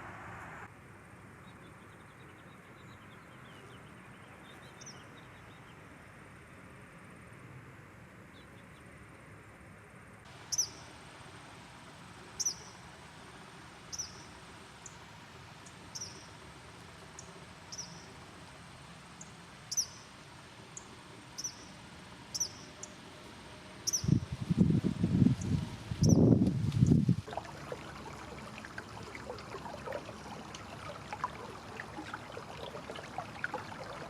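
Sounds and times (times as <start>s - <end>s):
faint background hiss: 0.0s - 34.0s
small bird chirping: 23.8s - 24.2s.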